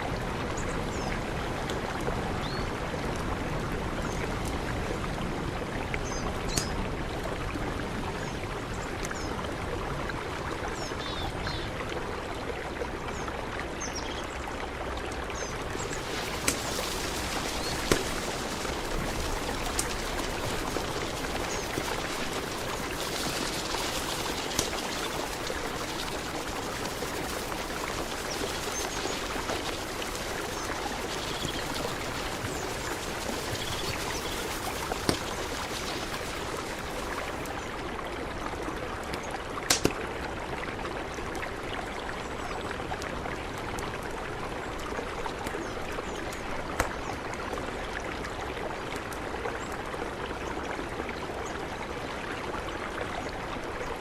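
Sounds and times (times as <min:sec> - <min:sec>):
river flowing: 0:00.0 - 0:54.0.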